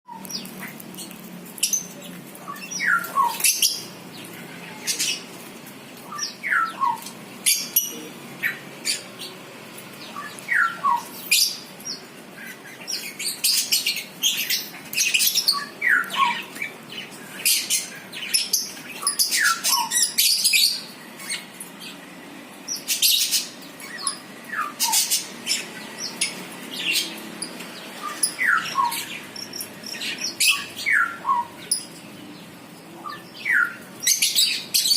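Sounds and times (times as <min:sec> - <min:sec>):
small birds chirping: 0:00.1 - 0:34.9.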